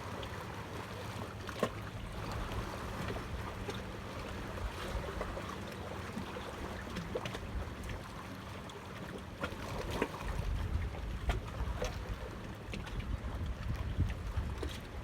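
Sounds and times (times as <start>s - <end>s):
water lapping: 0.0s - 15.0s
wind buffeting microphone: 12.8s - 15.0s.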